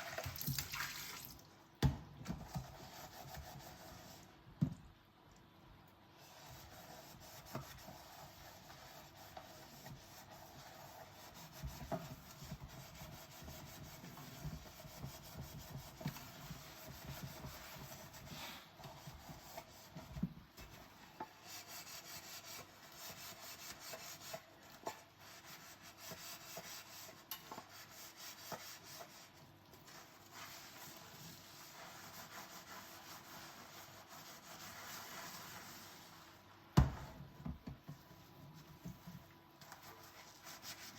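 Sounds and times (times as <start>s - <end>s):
sponge scrubbing dishes: 6.2s - 36.4s, 39.6s - 40.9s.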